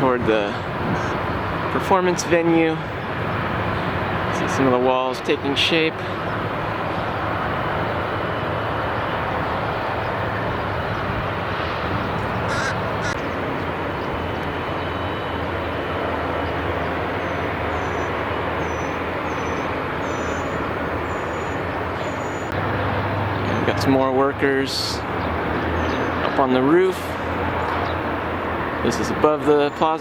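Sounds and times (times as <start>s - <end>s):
traffic noise: 0.0s - 30.0s
crow cawing: 12.4s - 13.3s.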